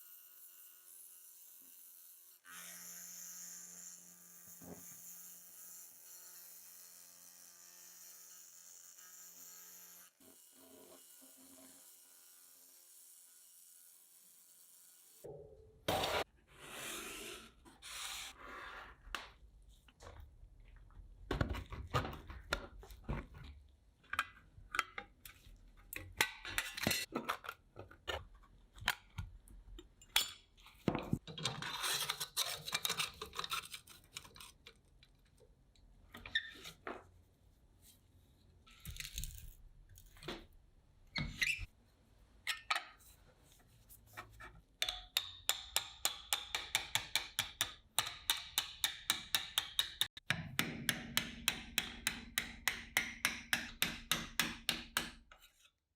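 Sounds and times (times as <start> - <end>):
scraping and rubbing small parts: 31.4 - 35.2.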